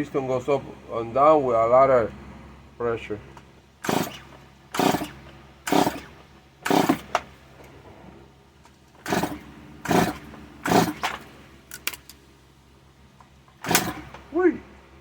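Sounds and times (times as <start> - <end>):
chainsaw pull-start cranking: 3.8 - 7.4, 9.0 - 12.2, 13.5 - 14.3.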